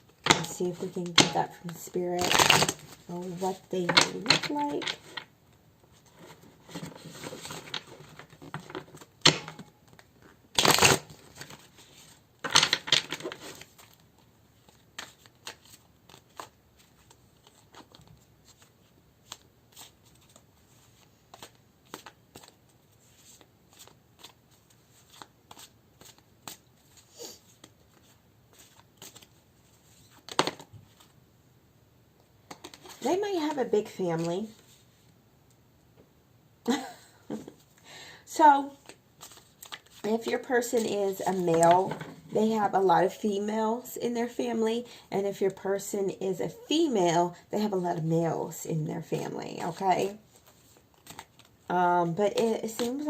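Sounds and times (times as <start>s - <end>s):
cards rustling while shuffled: 0.1s - 5.3s, 5.9s - 31.2s, 32.4s - 33.6s, 38.6s - 42.2s, 49.6s - 53.0s.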